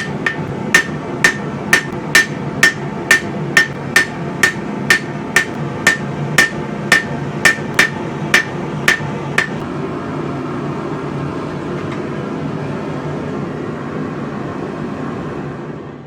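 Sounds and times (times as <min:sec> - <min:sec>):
hammer ringing on anvil: 0:00.0 - 0:09.6.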